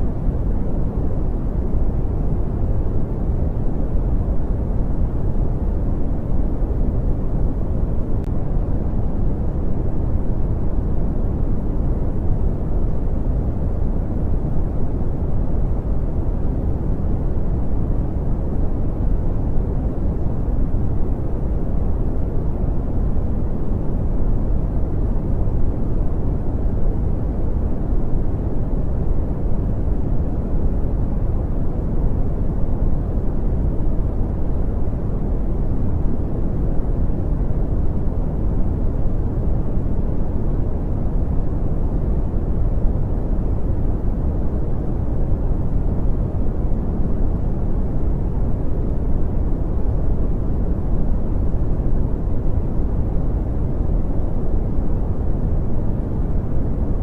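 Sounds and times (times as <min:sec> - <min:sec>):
brown noise rumbling hiss: 0:00.0 - 0:57.0.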